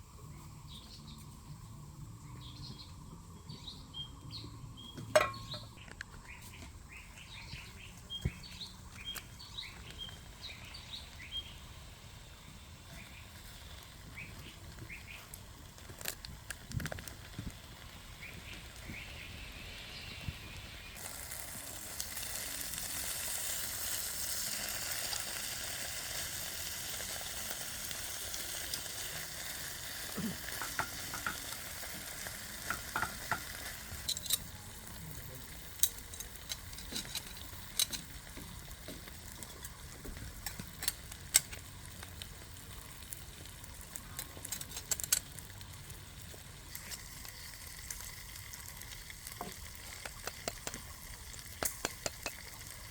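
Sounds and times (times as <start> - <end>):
food sizzling in a pan: 7.2 - 52.9
utensil clicking against pan: 50.0 - 50.8, 51.6 - 52.6.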